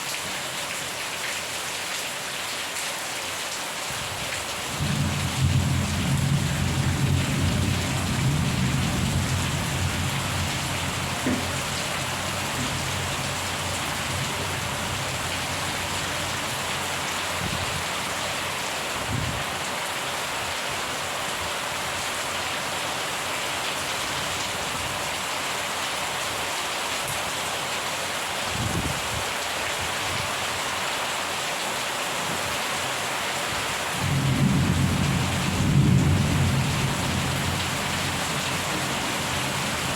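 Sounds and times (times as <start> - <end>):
steady rain: 0.0 - 39.9
rolling thunder: 4.8 - 16.3, 34.0 - 39.9.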